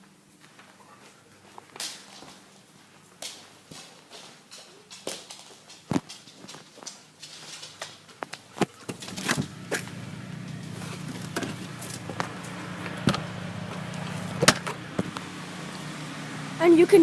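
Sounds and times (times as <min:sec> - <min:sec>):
footsteps: 0:00.0 - 0:15.8
low mechanical engine hum: 0:08.8 - 0:17.0.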